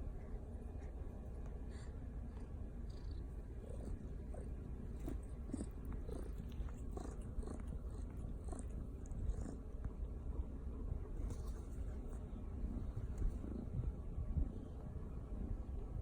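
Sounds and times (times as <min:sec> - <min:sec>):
kitten growling: 0:02.8 - 0:09.8.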